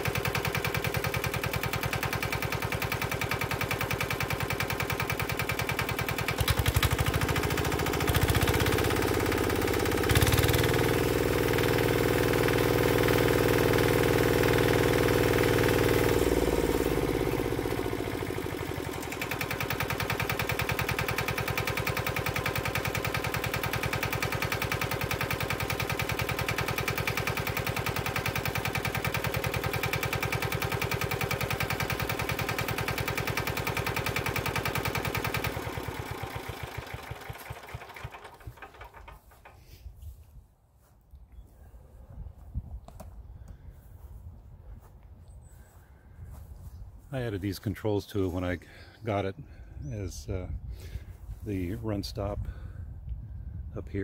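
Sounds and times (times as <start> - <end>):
diesel engine idling and revving: 0.0 - 39.6.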